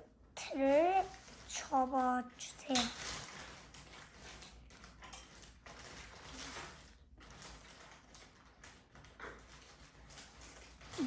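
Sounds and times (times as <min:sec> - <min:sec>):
paper rustling and creasing: 0:00.5 - 0:11.0.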